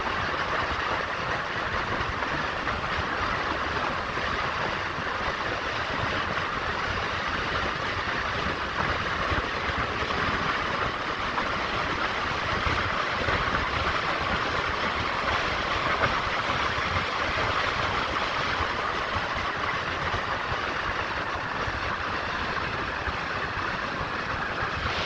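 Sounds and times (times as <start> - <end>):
moving vehicle rumble: 14.8 - 25.0.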